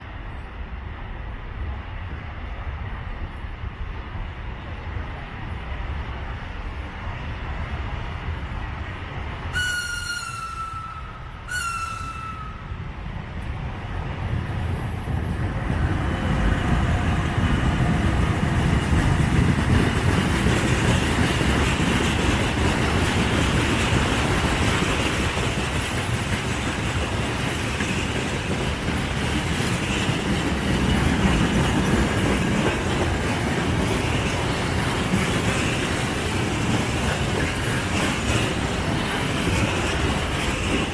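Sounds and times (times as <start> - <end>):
freight train rumbling past: 0.0 - 40.9
train horn blasts: 9.5 - 12.8.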